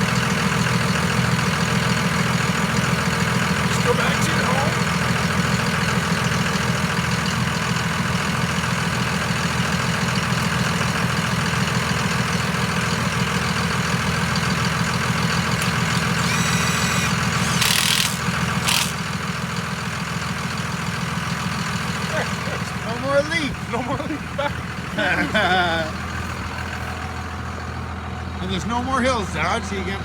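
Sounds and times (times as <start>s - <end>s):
diesel engine running: 0.0s - 30.0s
high whistling: 16.2s - 18.0s.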